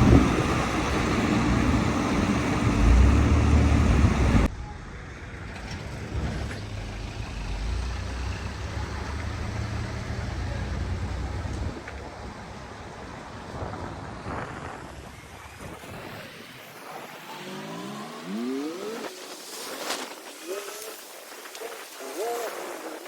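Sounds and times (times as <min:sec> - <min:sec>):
vehicle engine rumble: 0:00.0 - 0:15.8
road noise: 0:00.0 - 0:23.0.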